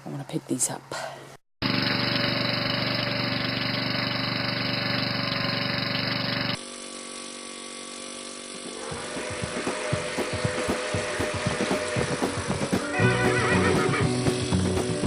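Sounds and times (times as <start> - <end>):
lawn mower engine running: 1.6 - 15.0
music: 9.0 - 15.0.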